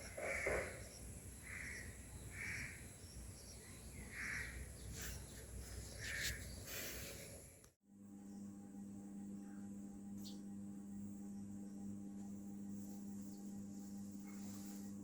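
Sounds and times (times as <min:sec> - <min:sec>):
crow cawing: 0:00.2 - 0:00.8, 0:01.4 - 0:02.8, 0:04.1 - 0:04.6.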